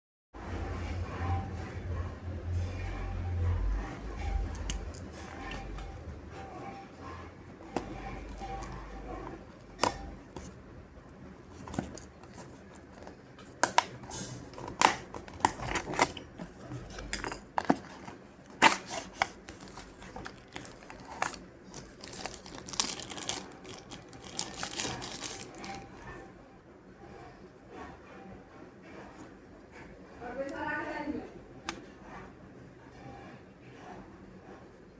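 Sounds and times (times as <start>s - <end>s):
packaging crinkling: 11.4s - 26.1s.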